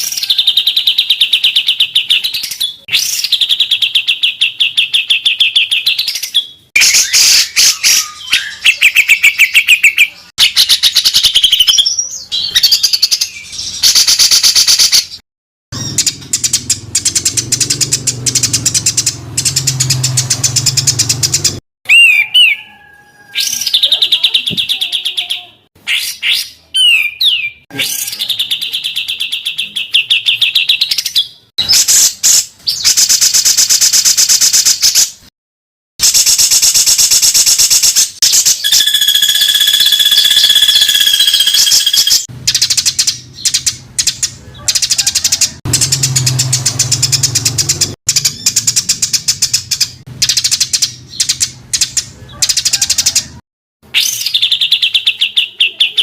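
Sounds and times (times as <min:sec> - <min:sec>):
songbirds trilling harshly: 0:15.8 - 0:31.3, 0:38.2 - 0:53.2.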